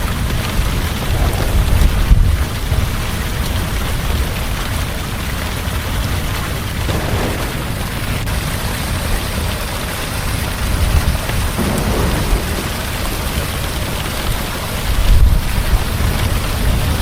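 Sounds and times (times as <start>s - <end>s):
heavy rain falling: 0.0s - 17.0s
low thunder rumble: 0.5s - 4.2s, 6.7s - 17.0s.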